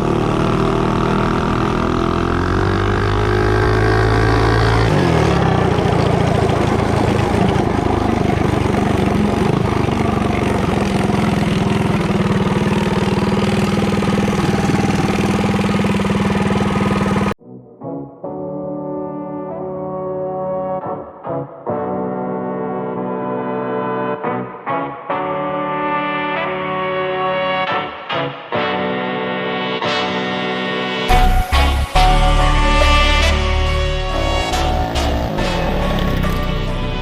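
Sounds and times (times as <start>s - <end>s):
mini bike engine revving: 0.0s - 17.4s, 34.1s - 37.0s
brass music: 17.4s - 37.0s.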